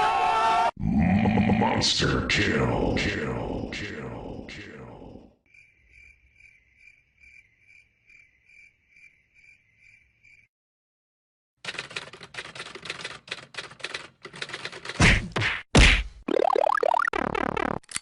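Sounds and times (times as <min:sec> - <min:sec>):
cricket chirping: 0:02.8 - 0:10.5.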